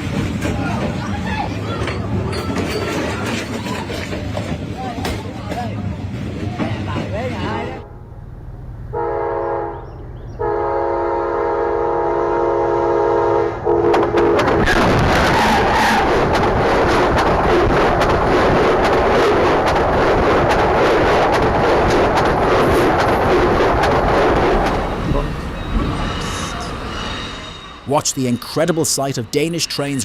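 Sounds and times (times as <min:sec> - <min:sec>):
train passing with wheel clatter: 0:00.0 - 0:30.0
train horn: 0:08.9 - 0:14.6.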